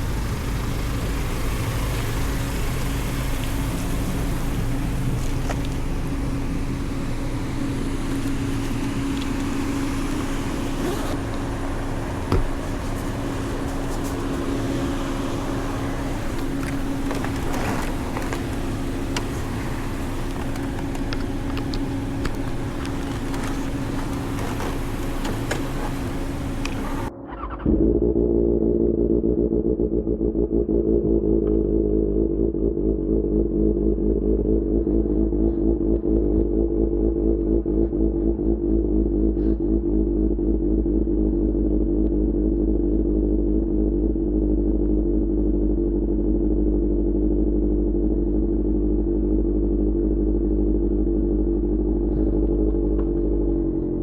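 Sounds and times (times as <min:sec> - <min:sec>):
motorcycle engine: 0:00.0 - 0:41.4.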